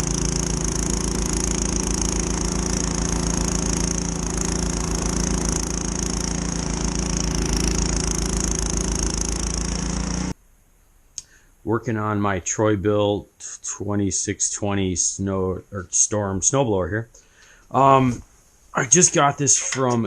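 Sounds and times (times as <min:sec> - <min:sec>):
snowblower engine running: 0:00.0 - 0:10.4.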